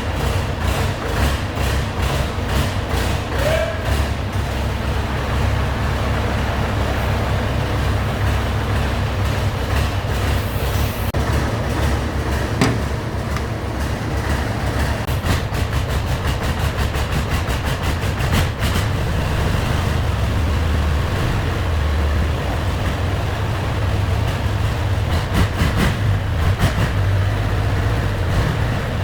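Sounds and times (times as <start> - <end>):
diesel engine rumbling: 0.0 - 29.0
rapid even clatter: 9.2 - 20.2, 22.2 - 29.0.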